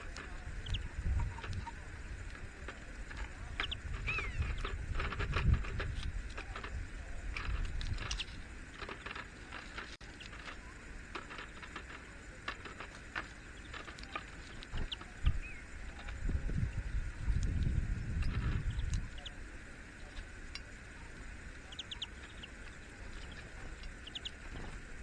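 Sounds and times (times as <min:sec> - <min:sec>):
high bird chirps: 0:03.6 - 0:04.6
low rumble: 0:14.6 - 0:19.2.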